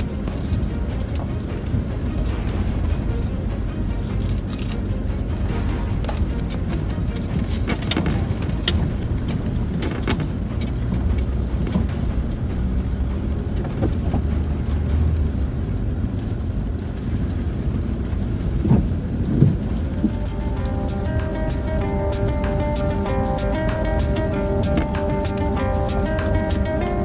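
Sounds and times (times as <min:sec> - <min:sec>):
engine and tyre rumble: 0:00.0 - 0:27.0
knocks and clatter from bumps: 0:06.0 - 0:12.5.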